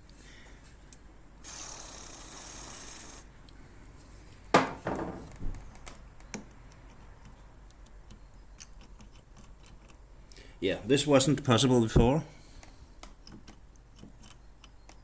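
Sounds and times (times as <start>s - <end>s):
hiss: 1.4s - 3.3s.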